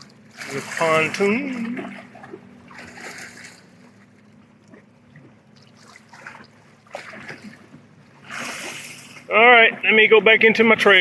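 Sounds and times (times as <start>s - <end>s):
distant motorboat engine hum: 0.0s - 11.0s
water lapping at shoreline: 0.0s - 11.0s
water splashes: 0.0s - 11.0s.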